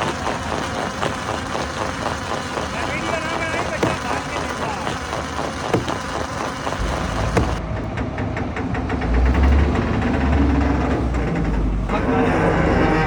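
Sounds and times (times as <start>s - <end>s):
fast even knocking: 0.0s - 12.2s
stone crusher engine rumble: 0.0s - 13.0s.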